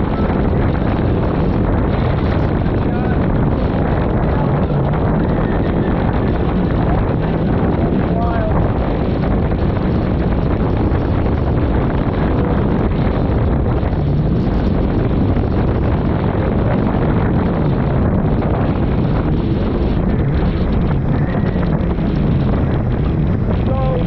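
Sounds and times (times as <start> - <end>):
jet ski engine running: 0.0 - 24.0
wind buffeting microphone: 0.0 - 24.0.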